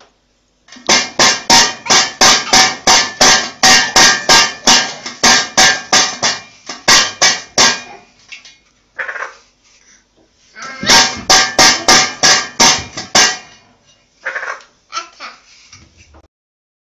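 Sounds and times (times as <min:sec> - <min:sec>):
sharp ringing knocks: 0:00.9 - 0:08.0, 0:10.8 - 0:13.6.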